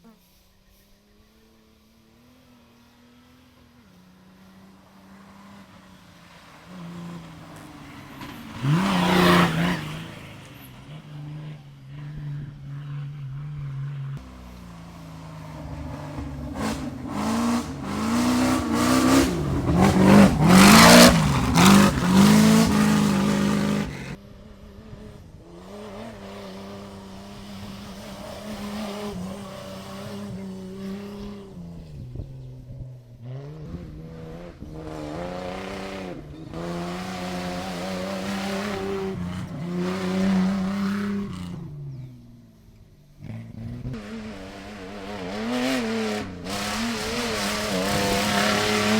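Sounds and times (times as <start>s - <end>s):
rally cars racing past: 0.0s - 48.9s.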